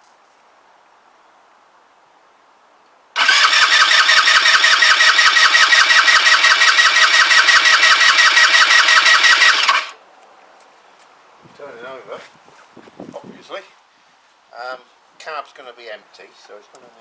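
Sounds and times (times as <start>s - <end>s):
scooter engine cranking: 3.2s - 10.0s.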